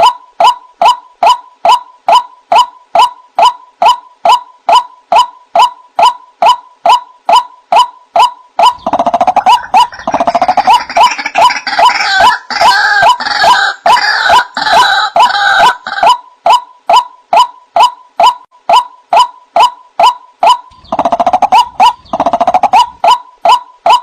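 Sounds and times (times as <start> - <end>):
waterhen calling: 0.8 - 24.0
rough chorus of bird calls: 7.7 - 16.3, 19.1 - 24.0.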